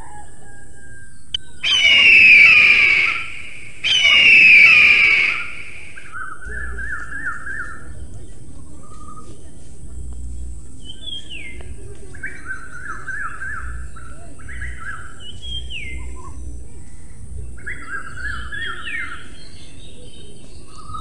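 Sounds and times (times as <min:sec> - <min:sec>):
bird chattering: 0:01.4 - 0:07.6
bird whistling falling note: 0:01.6 - 0:06.2.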